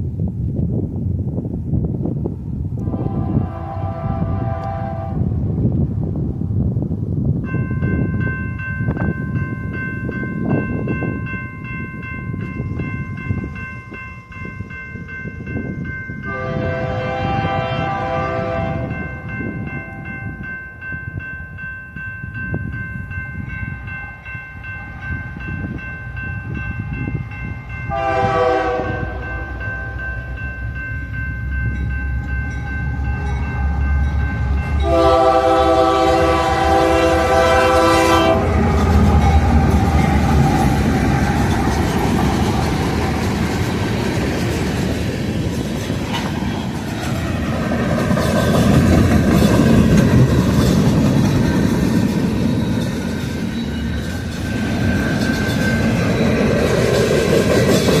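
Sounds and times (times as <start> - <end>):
train rumble: 0.0 - 58.0
train air horn blasts: 2.8 - 5.4, 16.3 - 19.0, 27.9 - 30.0, 34.8 - 39.6
railroad crossing bell ringing: 7.3 - 45.9, 46.7 - 58.0.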